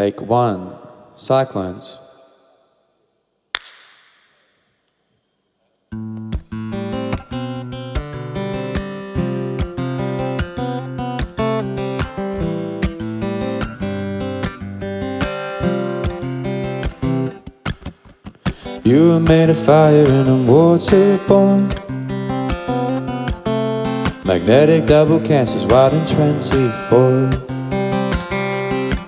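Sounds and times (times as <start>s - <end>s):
acoustic guitar strumming: 5.9s - 29.0s.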